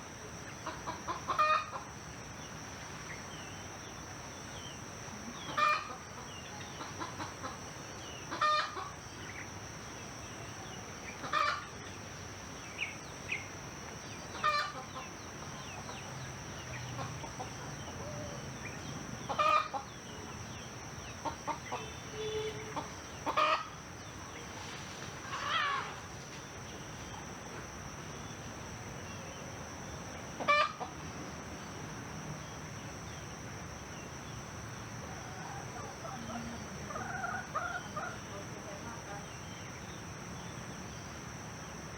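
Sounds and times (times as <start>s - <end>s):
steady high-pitched hum: 0.0s - 41.9s
chickens clucking: 22.7s - 23.7s, 30.4s - 31.0s.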